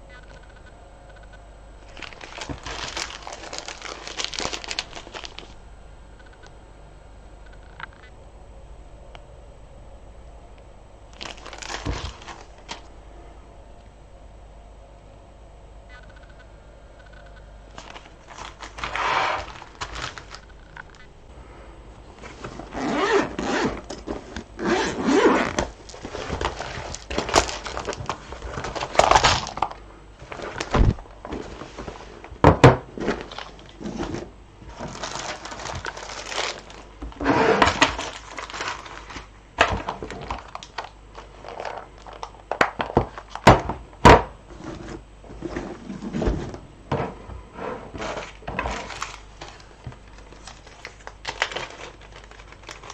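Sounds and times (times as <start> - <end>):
beads rustling: 1.8 - 5.6, 11.1 - 12.9, 17.7 - 21.0, 25.6 - 32.3, 34.7 - 43.4, 48.2 - 52.9.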